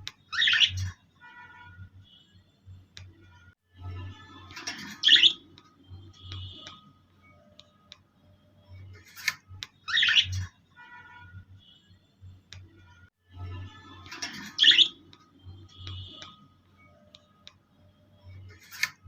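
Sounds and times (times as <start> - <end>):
birds chirping: 0.1 - 1.0, 4.5 - 6.8, 9.8 - 10.5, 14.0 - 16.4.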